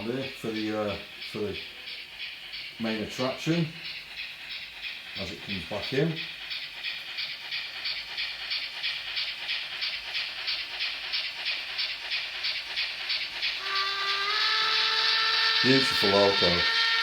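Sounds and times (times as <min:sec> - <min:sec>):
model steam locomotive chuffs: 0:00.0 - 0:17.0
locomotive whistle: 0:13.6 - 0:17.0.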